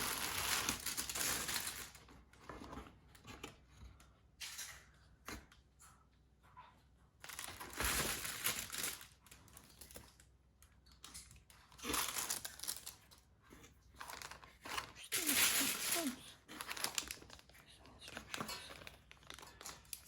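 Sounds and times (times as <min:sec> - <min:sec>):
packaging crinkling: 0:00.0 - 0:02.0, 0:07.3 - 0:10.2, 0:11.8 - 0:13.1, 0:14.0 - 0:20.0.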